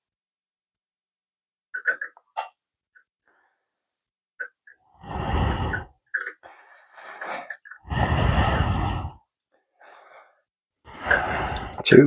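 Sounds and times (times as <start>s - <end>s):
man breathing out heavily: 4.9s - 11.9s.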